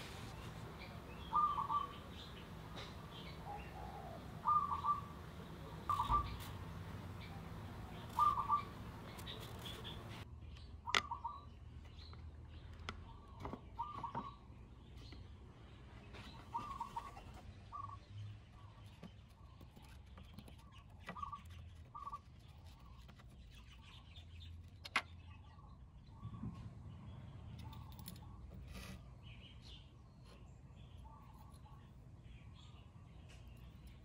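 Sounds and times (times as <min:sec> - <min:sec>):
low steady hum: 0:00.0 - 0:13.8
faint bird chirps: 0:00.0 - 0:15.3, 0:16.0 - 0:34.0
small metal parts clicking: 0:27.6 - 0:28.3.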